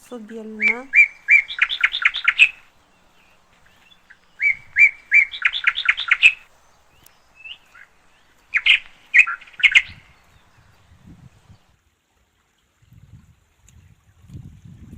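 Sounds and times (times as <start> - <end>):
songbird chirping: 0.0 - 11.8.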